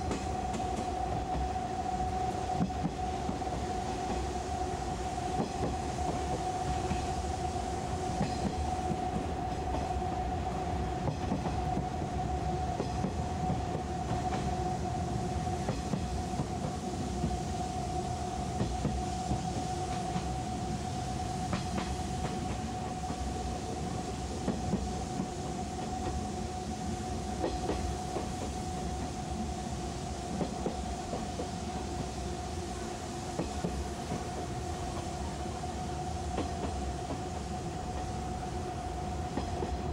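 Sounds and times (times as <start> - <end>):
faint rail-joint clicks: 0.0 - 1.4, 8.2 - 9.9, 12.8 - 14.5, 21.5 - 26.2, 27.4 - 29.2, 30.3 - 32.1, 36.3 - 38.1, 39.3 - 39.9
train interior rumbling hum: 0.0 - 39.9.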